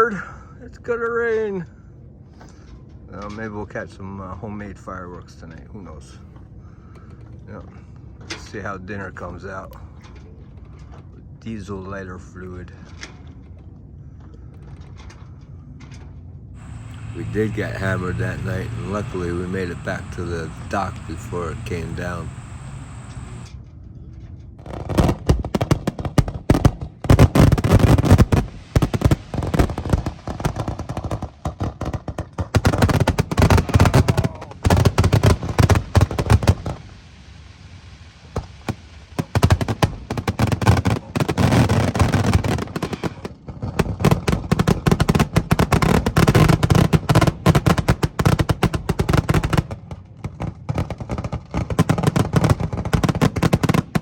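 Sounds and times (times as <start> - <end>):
fireworks bangs and crackles: 16.6 - 23.5, 24.6 - 37.2, 38.2 - 54.0.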